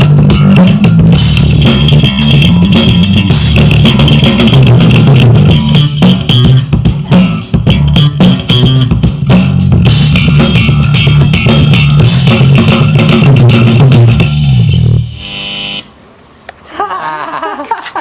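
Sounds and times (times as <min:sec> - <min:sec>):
drum kit: 0:00.0 - 0:15.2
bass guitar: 0:00.0 - 0:15.8
electric guitar: 0:00.0 - 0:15.8.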